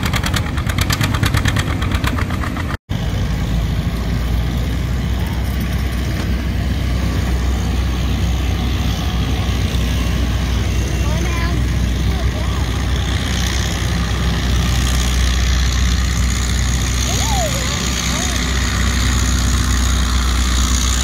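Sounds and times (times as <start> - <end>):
tractor engine running hard: 0.0 - 21.0
tractor idling: 0.0 - 21.0.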